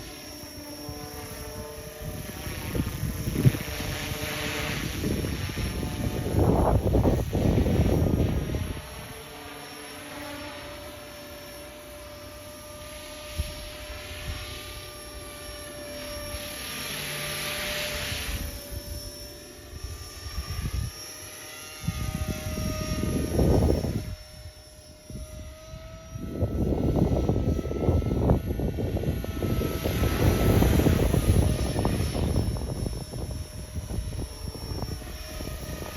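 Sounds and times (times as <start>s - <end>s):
rc helicopter rotor whine: 0.0s - 35.9s
wind buffeting microphone: 1.5s - 9.2s, 21.8s - 35.9s.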